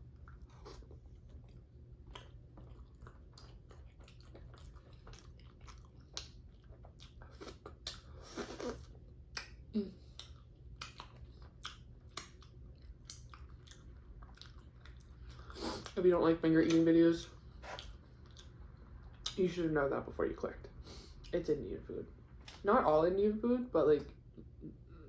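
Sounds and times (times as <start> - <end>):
close chewing: 0.1 - 16.0.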